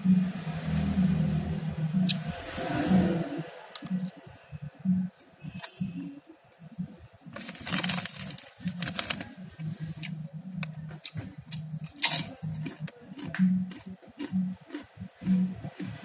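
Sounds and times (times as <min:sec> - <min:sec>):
person chewing food: 0:10.0 - 0:16.0.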